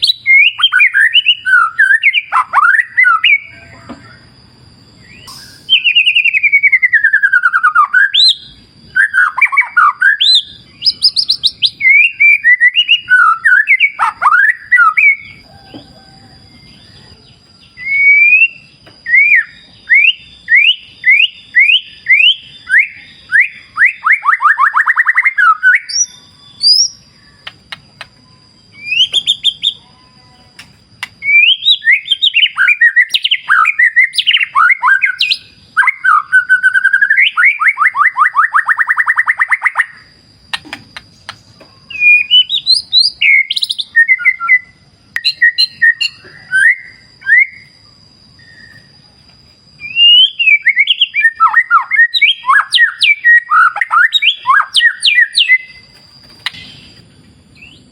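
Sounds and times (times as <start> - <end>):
bird singing clear whistles: 0.0 - 4.3, 5.0 - 49.0, 49.8 - 57.9
steady thin high tone: 5.0 - 6.0.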